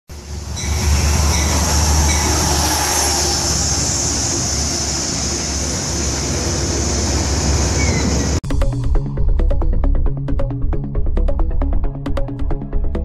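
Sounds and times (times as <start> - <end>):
train low rumble: 0.1 - 13.0
high hiss: 0.3 - 8.3.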